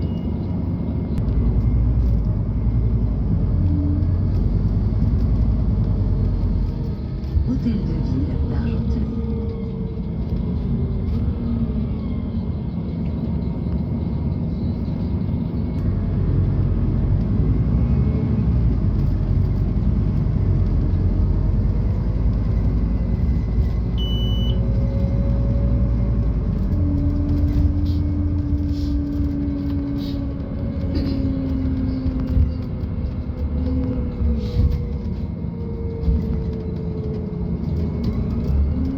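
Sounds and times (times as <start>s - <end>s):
bus engine rumbling: 0.0s - 38.9s
short high beep: 24.0s - 24.6s.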